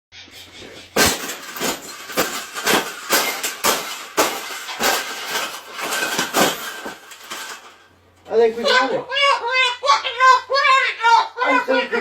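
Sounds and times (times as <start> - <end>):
cage being struck: 0.9 - 7.7.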